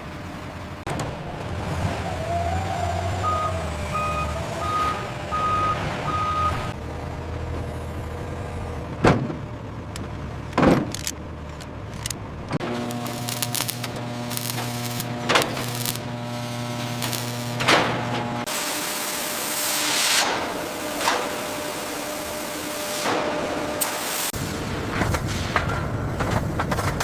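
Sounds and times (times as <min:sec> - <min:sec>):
heavy machinery humming: 0:00.0 - 0:26.2
reversing alarm beeps: 0:03.2 - 0:06.7.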